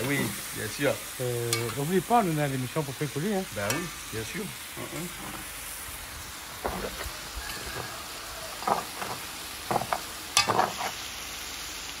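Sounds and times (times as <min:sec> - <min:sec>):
meat sizzling in a pot: 0:00.0 - 0:12.0
spoon scraping and knocking pot: 0:08.6 - 0:11.0.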